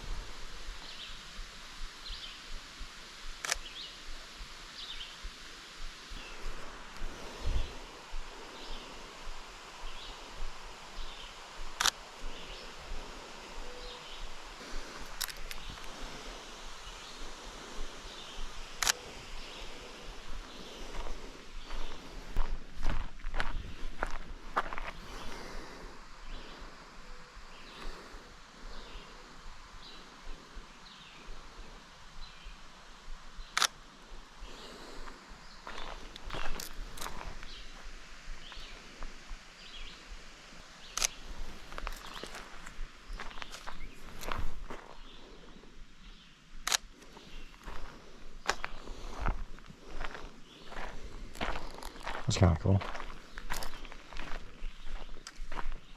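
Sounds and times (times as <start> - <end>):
low outdoor background: 0.0 - 55.9
camera shutter click: 3.4 - 3.8, 18.8 - 19.0, 33.6 - 33.8, 46.6 - 46.9.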